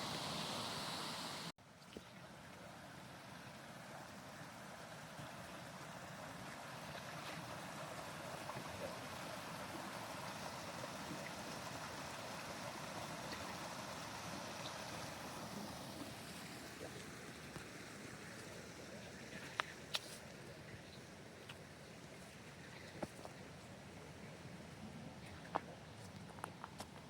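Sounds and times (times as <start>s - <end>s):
stream of running water: 0.0s - 27.0s.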